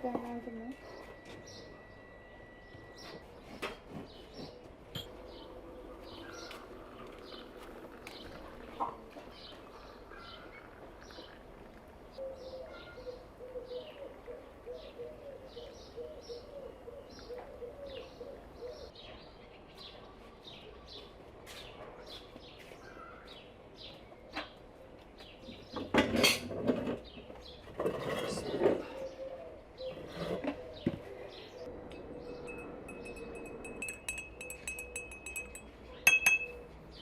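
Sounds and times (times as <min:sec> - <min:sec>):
small birds chirping: 0:00.0 - 0:25.9, 0:26.9 - 0:37.0.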